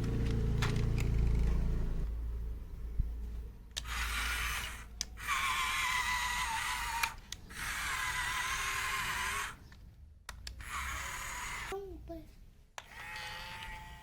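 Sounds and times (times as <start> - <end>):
small electric toy motor whirring: 3.8 - 9.7, 10.5 - 11.9, 12.8 - 14.0.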